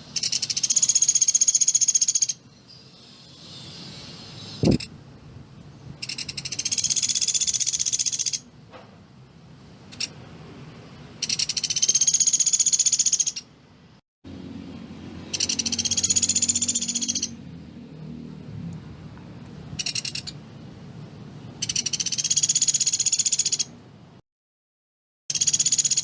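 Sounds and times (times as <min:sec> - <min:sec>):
woodpecker rattling trills: 0:00.1 - 0:02.4, 0:06.0 - 0:08.4, 0:11.2 - 0:13.5, 0:15.2 - 0:17.4, 0:19.8 - 0:20.4, 0:21.6 - 0:23.7, 0:25.3 - 0:26.0.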